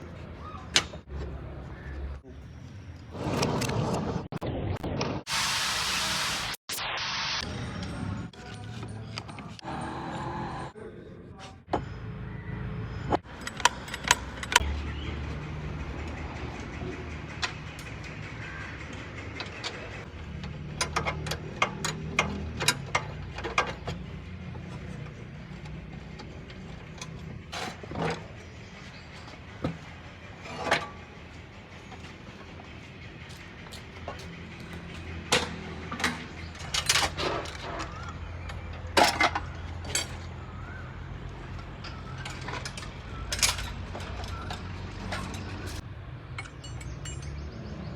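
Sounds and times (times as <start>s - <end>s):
sharp clicks and knocks: 13.1s - 14.8s, 15.8s - 29.9s.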